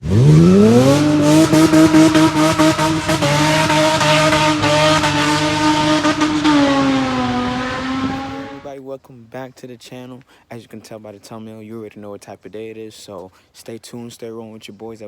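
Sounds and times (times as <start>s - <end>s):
car engine revving: 0.0s - 8.7s.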